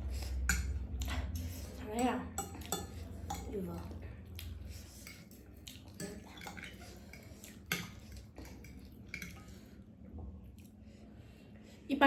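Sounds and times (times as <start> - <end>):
utensils clinking on dishes: 0.2 - 4.0, 5.0 - 9.6.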